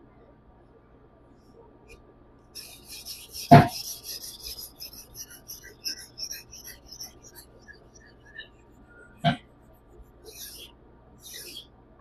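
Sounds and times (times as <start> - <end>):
knife rasping on whetstone: 2.6 - 8.4.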